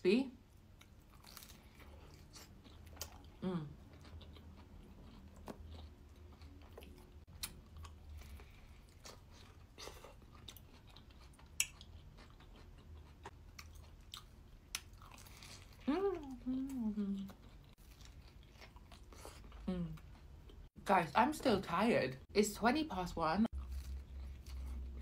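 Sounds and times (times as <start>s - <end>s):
person chewing a sandwich: 0.6s - 20.8s, 23.5s - 25.0s
bread crunch: 23.5s - 25.0s.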